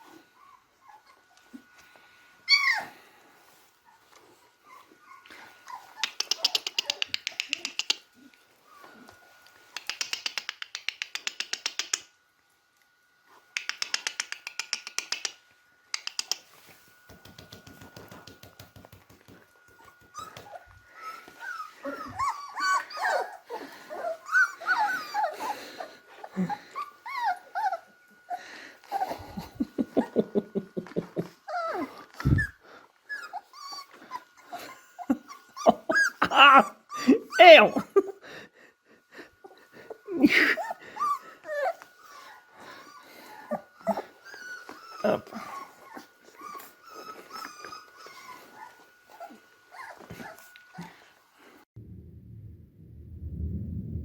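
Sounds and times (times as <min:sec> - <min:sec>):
puppies whimpering and squeaking: 0:00.0 - 0:01.8, 0:02.4 - 0:12.0, 0:19.6 - 0:51.1
puppy growling: 0:04.6 - 0:09.1, 0:19.7 - 0:28.0, 0:28.9 - 0:37.8, 0:39.5 - 0:51.0.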